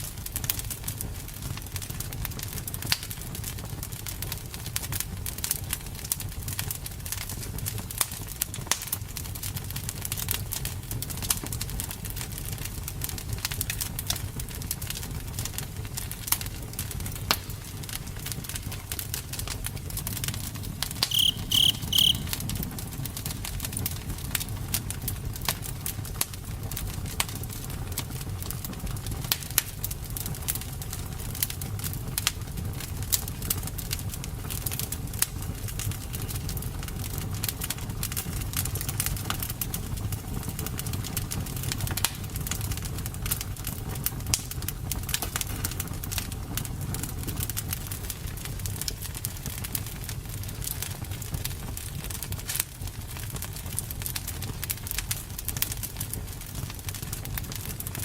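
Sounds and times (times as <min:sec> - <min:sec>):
campfire crackling and popping: 0:00.2 - 0:22.3, 0:33.0 - 0:58.0
short high chirps: 0:21.0 - 0:22.3
low rumble of flames: 0:23.4 - 0:58.0.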